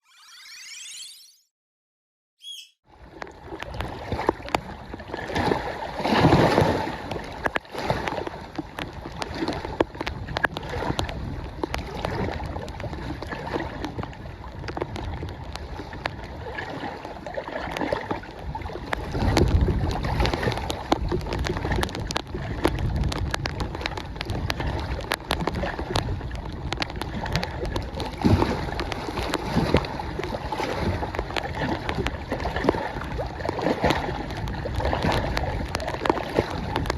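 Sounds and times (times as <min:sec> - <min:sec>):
water lapping at shore: 0:02.9 - 0:36.9
gusty wind buffeting microphone: 0:18.2 - 0:32.3
rain: 0:20.9 - 0:27.9.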